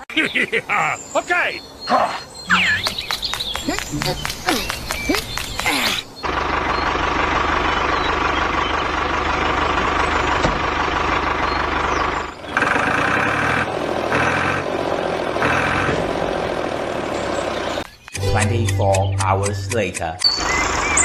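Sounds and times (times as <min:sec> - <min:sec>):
high beeps: 0:02.5 - 0:02.9, 0:18.2 - 0:20.4
engine running: 0:02.6 - 0:19.7, 0:20.4 - 0:21.0.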